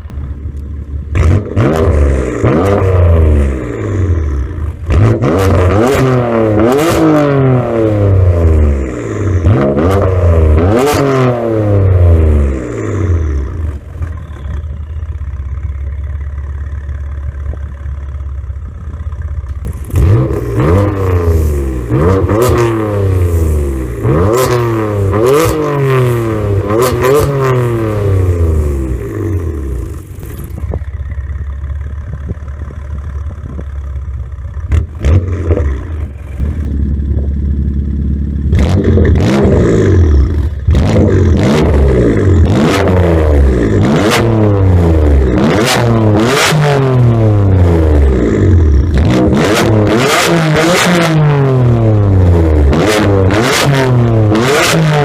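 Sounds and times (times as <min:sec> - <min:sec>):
car engine revving: 0:00.0 - 0:55.0
exhaust cracks: 0:00.0 - 0:55.0.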